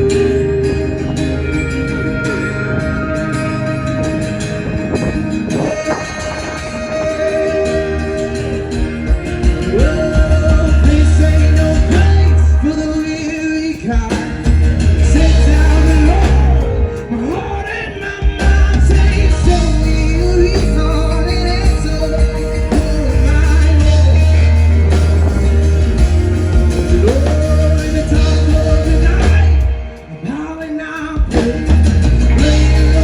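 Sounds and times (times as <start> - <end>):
heavy bass line: 0.0 - 30.0, 31.2 - 33.0
live rock band playing: 0.0 - 33.0
person singing: 0.0 - 33.0.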